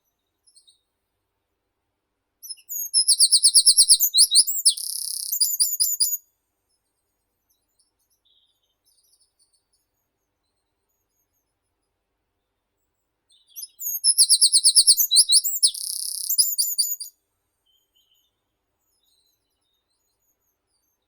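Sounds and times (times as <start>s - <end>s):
faint bird chirps: 0.0s - 0.9s, 2.4s - 11.7s, 12.3s - 21.0s
songbird whistled phrase: 2.5s - 6.2s, 13.5s - 17.1s.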